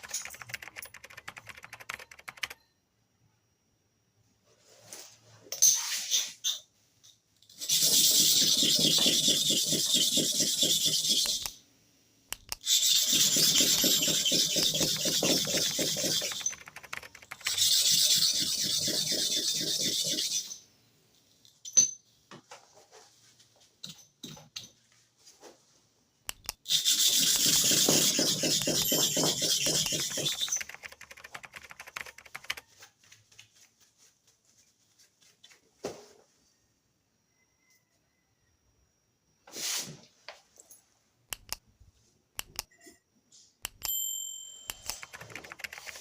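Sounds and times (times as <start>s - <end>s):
blade scraping on sharpening stone: 7.6s - 11.5s
small scraping clicks: 12.3s - 19.8s
metallic blade ring: 43.8s - 44.8s.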